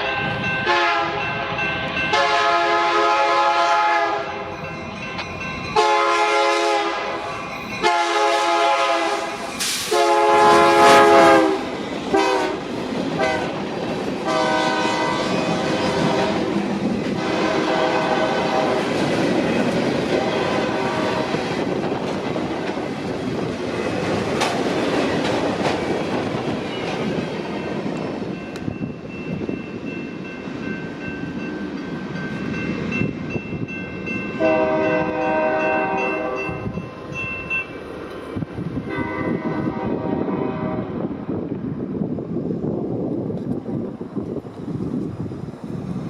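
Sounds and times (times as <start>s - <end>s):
train rumbling and clattering past: 0.0s - 46.0s
locomotive air horn blasts: 0.6s - 4.4s, 5.8s - 12.6s, 13.2s - 13.6s, 14.2s - 16.5s, 17.2s - 18.8s, 20.2s - 21.3s, 34.4s - 36.6s, 38.9s - 40.9s.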